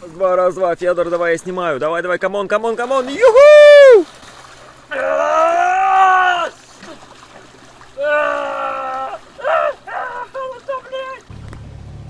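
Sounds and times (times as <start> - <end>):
man yelling: 3.0 - 4.0, 4.9 - 6.6, 8.0 - 11.3.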